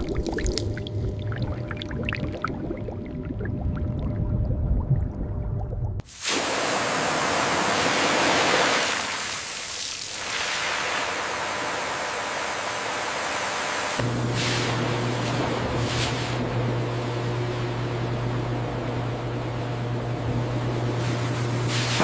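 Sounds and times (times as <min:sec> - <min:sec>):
rushing water hiss: 0:06.0 - 0:16.4, 0:21.0 - 0:22.0.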